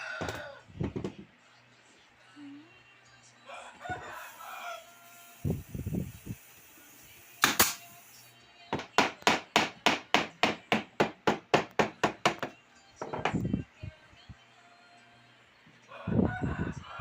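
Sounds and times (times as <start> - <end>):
hammer striking wood: 7.4 - 7.8, 8.8 - 13.4.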